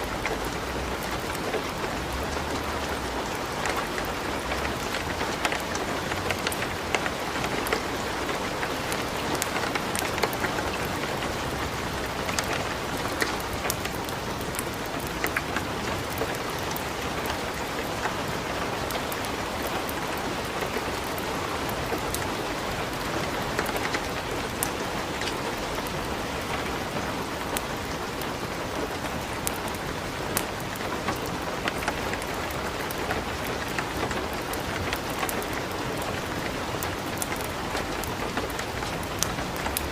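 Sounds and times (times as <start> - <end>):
light rain falling: 0.0 - 39.9
wood fire crackling: 0.2 - 18.1, 23.2 - 39.9.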